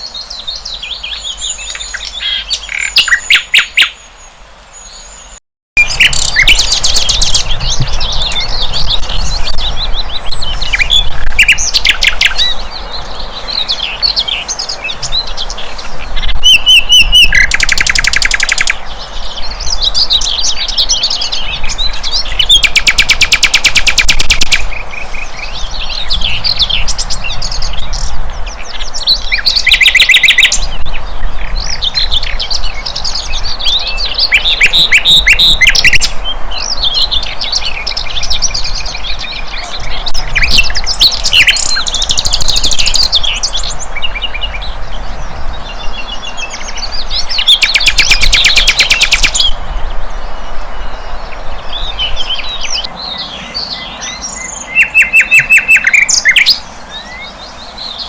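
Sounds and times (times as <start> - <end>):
loud rapid bird trills: 1.1 - 4.1, 5.8 - 30.8, 31.5 - 49.6, 50.2 - 58.0
bird chirping and whistling: 1.2 - 4.0, 5.8 - 12.6, 16.2 - 18.8, 20.0 - 24.7, 29.0 - 30.8, 33.6 - 36.1, 40.1 - 43.7, 47.1 - 49.6, 51.9 - 57.3.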